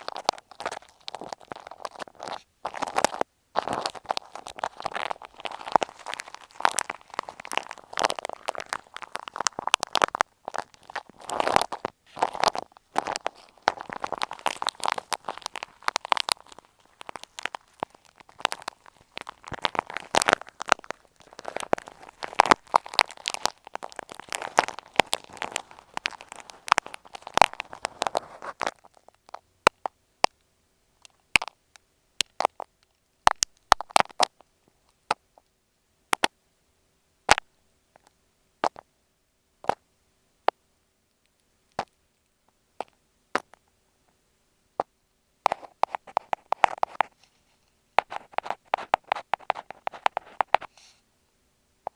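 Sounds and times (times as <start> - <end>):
crackly scratching on microphone: 0.0 - 29.2, 45.4 - 51.0.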